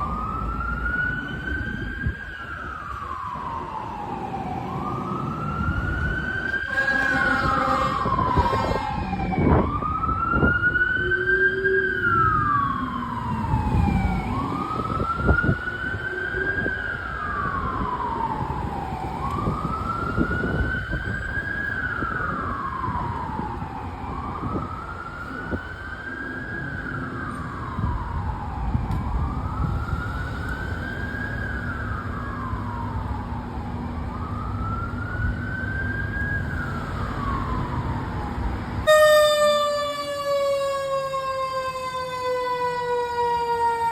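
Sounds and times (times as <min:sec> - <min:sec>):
fire truck siren wailing: 0:00.0 - 0:43.9
second siren: 0:00.0 - 0:43.9
truck engine and road noise: 0:00.0 - 0:43.9
horn blast: 0:06.7 - 0:09.0.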